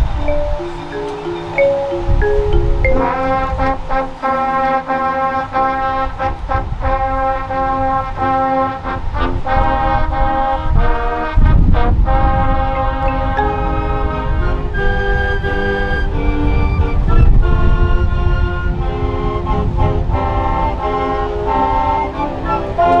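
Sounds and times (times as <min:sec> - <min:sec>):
brass chords: 0:00.0 - 0:14.9.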